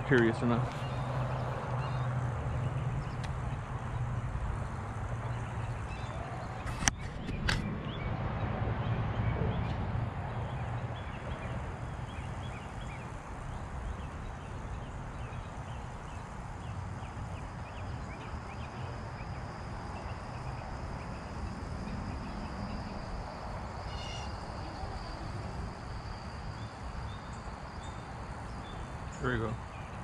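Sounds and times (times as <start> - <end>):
low rumble of creek: 0.0 - 30.0
loud bird call: 23.7 - 25.4
bird chirps: 23.9 - 24.9.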